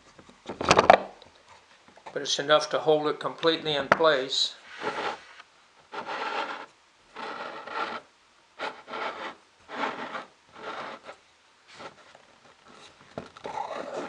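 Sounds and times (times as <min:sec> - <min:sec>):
wood rubbing on wood: 0:04.6 - 0:14.0.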